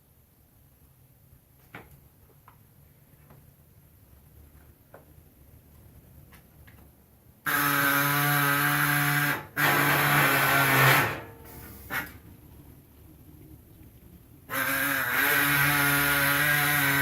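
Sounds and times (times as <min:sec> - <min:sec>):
pneumatic air saw cutting: 0:07.5 - 0:12.2, 0:14.5 - 0:17.0.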